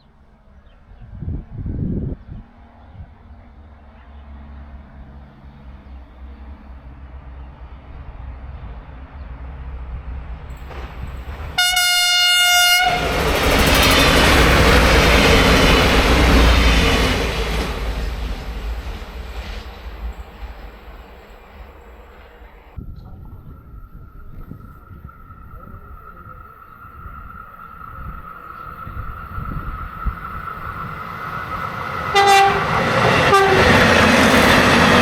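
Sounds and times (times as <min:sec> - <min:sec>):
train rumbling past: 0:00.0 - 0:35.0
train horn: 0:11.6 - 0:13.4, 0:32.0 - 0:35.0.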